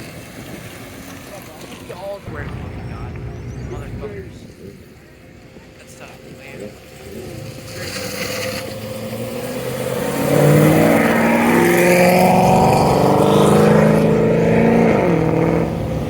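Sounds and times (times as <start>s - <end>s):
car accelerating past: 6.9s - 16.0s.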